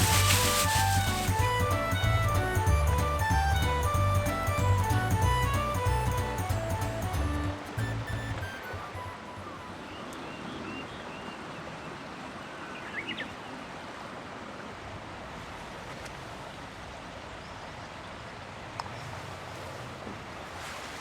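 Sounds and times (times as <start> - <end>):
short high chirps: 0.0 - 9.7
water rushing: 0.0 - 10.7.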